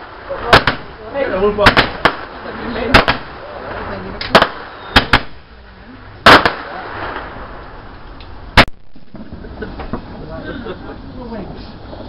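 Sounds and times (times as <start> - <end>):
fireworks bangs: 0.0 - 5.6, 6.2 - 10.0
fireworks crackling: 0.0 - 12.0.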